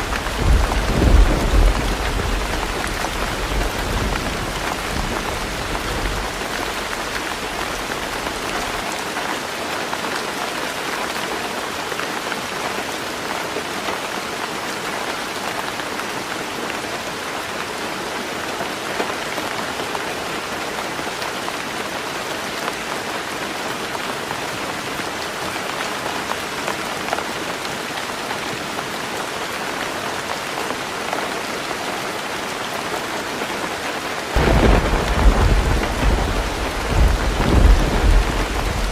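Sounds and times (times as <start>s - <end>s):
low rumble of thunder: 0.0s - 8.8s, 34.4s - 38.9s
heavy rain on a tin roof: 0.0s - 38.9s.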